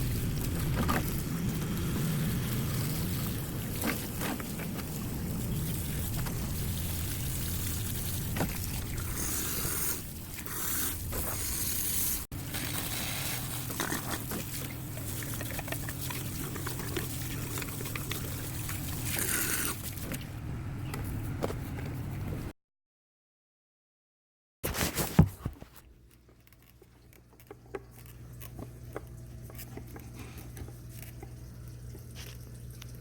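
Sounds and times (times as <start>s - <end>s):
water trickling and pouring: 0.0s - 11.7s, 12.4s - 20.2s, 26.9s - 33.0s.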